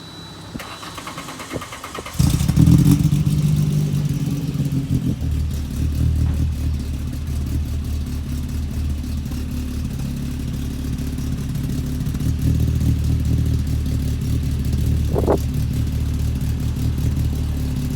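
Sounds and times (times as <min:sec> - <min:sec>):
car engine starting and idling: 0:00.3 - 0:17.9
starter motor cranking: 0:00.6 - 0:02.7.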